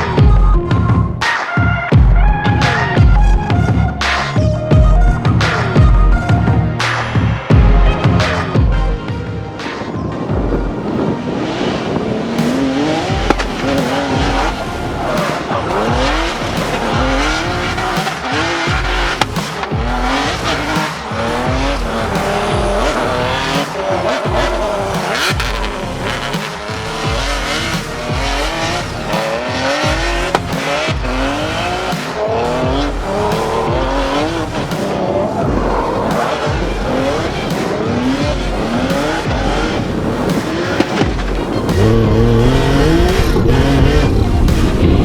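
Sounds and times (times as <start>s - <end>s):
tyres squealing: 9.6s - 44.7s
car engine revving: 9.6s - 45.0s.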